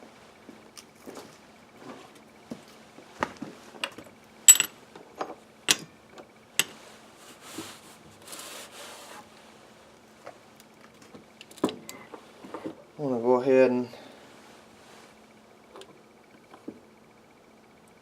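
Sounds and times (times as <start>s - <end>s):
metal parts clinking: 4.5s - 4.8s.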